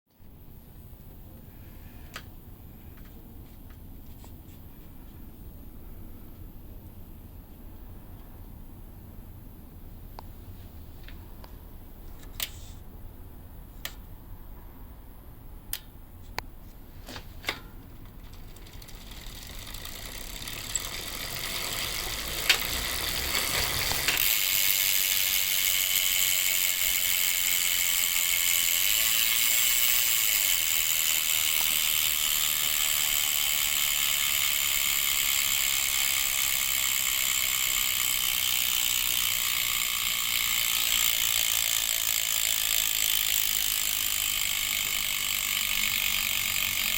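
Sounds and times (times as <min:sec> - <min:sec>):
bicycle freehub ratcheting: 0:17.4 - 0:46.9.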